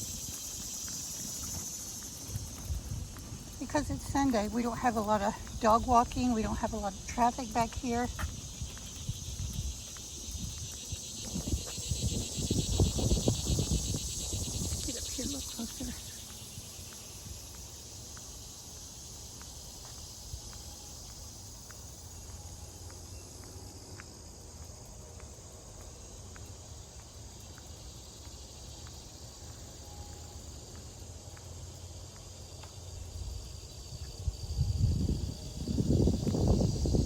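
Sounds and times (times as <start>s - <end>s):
low wind rumble: 0.0s - 17.3s, 32.9s - 37.0s
insects chirping: 0.0s - 37.0s.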